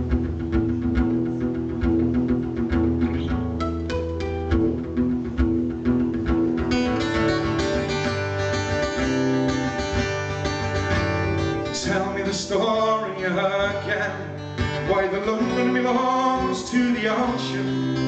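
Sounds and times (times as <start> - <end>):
string instrument playing: 0.2 - 12.2
person singing: 11.6 - 18.0.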